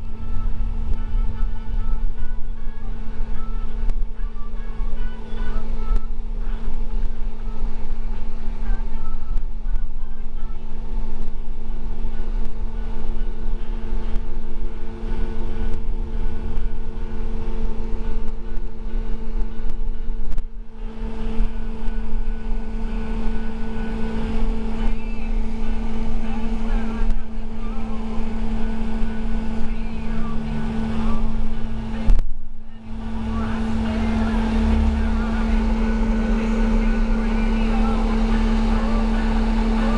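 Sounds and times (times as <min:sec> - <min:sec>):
bus engine and road noise: 0:00.0 - 0:39.9.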